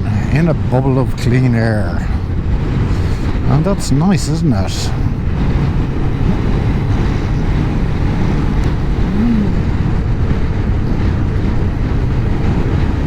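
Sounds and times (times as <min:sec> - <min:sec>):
heavy wind noise: 0:00.0 - 0:13.0
motorcycle engine at road speed: 0:04.8 - 0:13.0.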